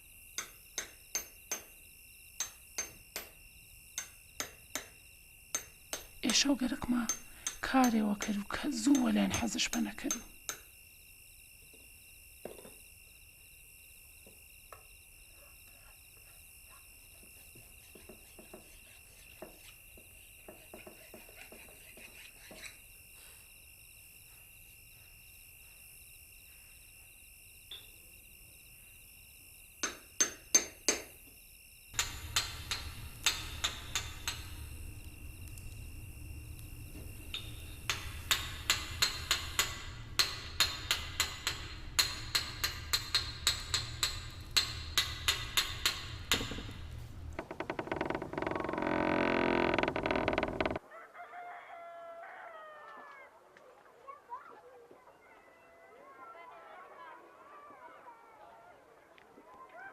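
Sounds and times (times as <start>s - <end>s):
hammer knocks: 37.3s - 48.4s.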